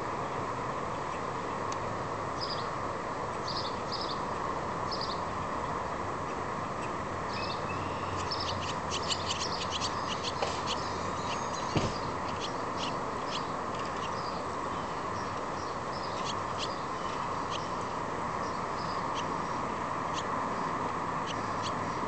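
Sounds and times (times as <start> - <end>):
steady background hum: 0.0 - 22.0
songbird chirping: 7.3 - 22.0.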